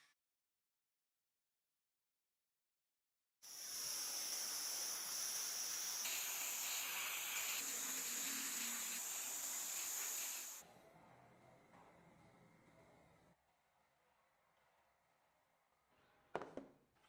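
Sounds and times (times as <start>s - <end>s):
faint hiss: 3.5s - 10.6s
high-pitched hiss: 3.5s - 10.6s.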